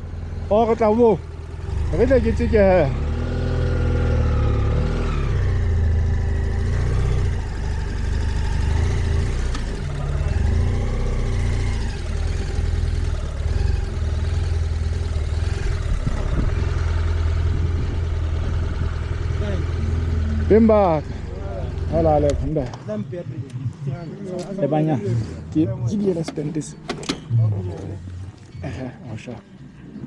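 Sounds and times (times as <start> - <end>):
motorcycle engine running: 0.0 - 22.7.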